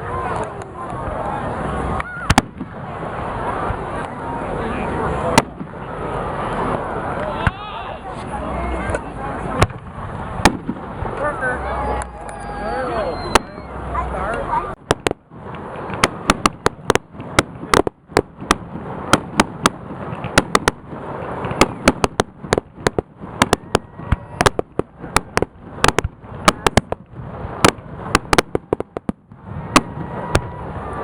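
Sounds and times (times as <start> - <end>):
continuous rumble: 0.0 - 31.0
fireworks bangs and cracks: 0.0 - 31.0.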